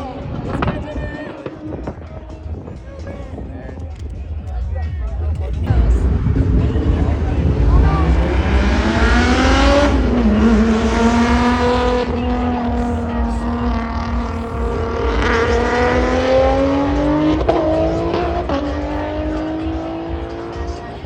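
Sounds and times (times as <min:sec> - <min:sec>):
car engine at high revs: 0:05.4 - 0:21.0.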